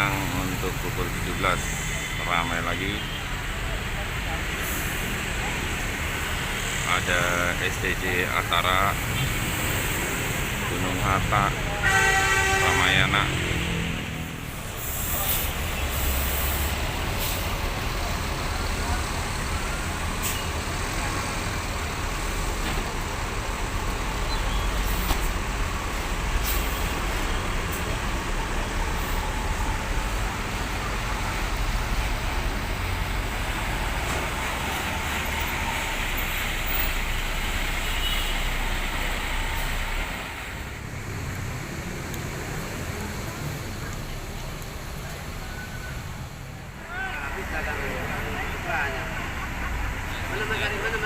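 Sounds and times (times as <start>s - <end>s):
diesel bus engines rumbling: 0.0s - 51.0s
road traffic: 0.0s - 51.0s.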